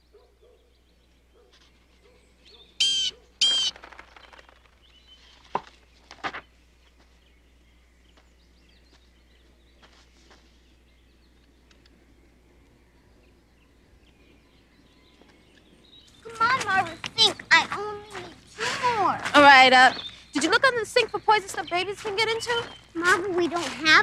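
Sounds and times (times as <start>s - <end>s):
bird giving harsh calls: 2.5s - 4.6s, 16.2s - 19.1s.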